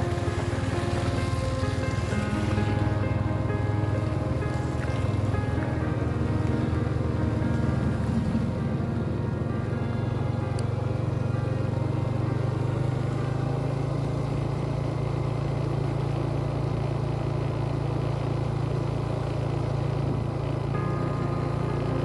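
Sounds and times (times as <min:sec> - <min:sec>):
motorcycle engine humming: 0:00.0 - 0:22.0.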